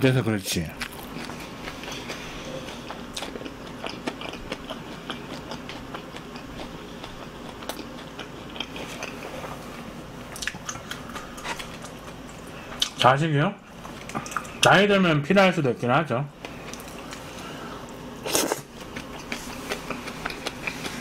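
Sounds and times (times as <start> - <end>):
wet chewing: 0.8 - 9.3, 10.3 - 13.0, 16.4 - 21.0.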